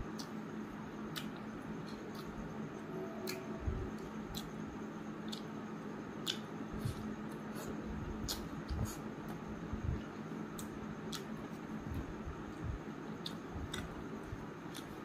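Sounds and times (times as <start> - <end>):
person chewing food: 0.0 - 0.5, 1.1 - 2.6, 3.2 - 15.0
low hum: 0.0 - 10.8
wet mouth clicks and smacks: 6.2 - 6.5.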